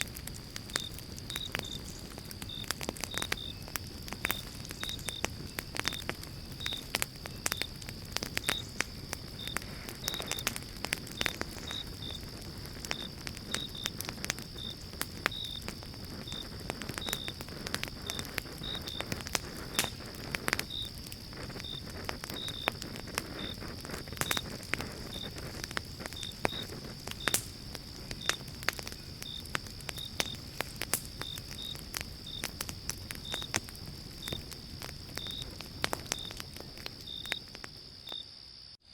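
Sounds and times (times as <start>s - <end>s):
campfire crackling and popping: 0.0s - 38.6s
insect chirps: 0.0s - 38.9s
insect trill: 0.0s - 38.9s.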